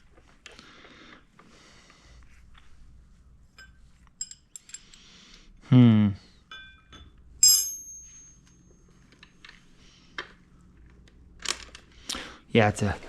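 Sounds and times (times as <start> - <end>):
metal bolts clinking: 6.5 - 9.6.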